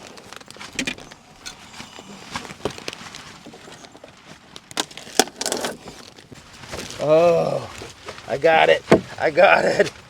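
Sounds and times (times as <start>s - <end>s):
objects knocking inside car: 8.8s - 9.3s.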